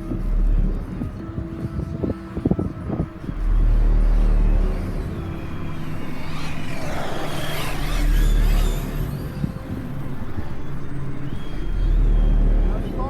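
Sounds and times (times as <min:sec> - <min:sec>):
heavy low rumble: 0:00.0 - 0:13.0
rc car electric motor whine: 0:03.2 - 0:12.8.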